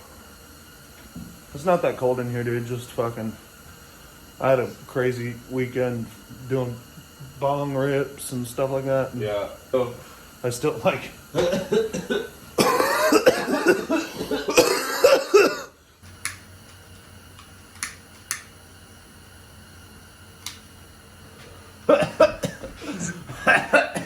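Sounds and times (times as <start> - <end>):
man clearing his throat: 11.4 - 15.8, 21.9 - 24.0
man coughing: 11.4 - 15.8, 21.9 - 24.0
sharp clicks: 16.2 - 16.8, 17.4 - 18.6, 20.4 - 20.7.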